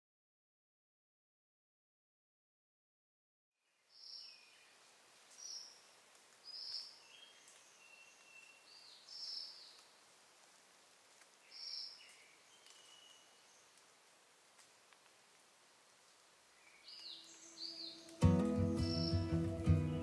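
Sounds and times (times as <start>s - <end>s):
steady soft hiss: 3.7s - 18.2s
thin whistled bird notes: 6.4s - 9.8s, 11.4s - 13.7s, 16.6s - 20.0s
birds calling: 16.5s - 20.0s.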